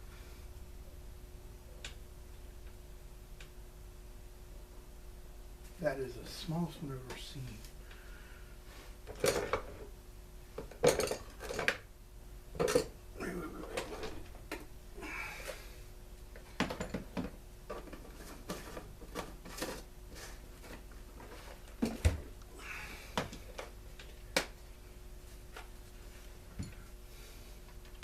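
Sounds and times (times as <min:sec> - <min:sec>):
hand tools and parts clinking: 0:10.6 - 0:11.8, 0:12.6 - 0:13.0.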